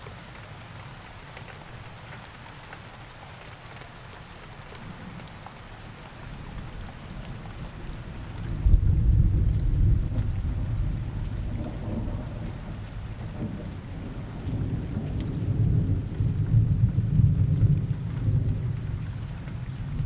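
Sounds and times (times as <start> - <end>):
steady rain: 0.0 - 20.0
rolling thunder: 8.2 - 19.0.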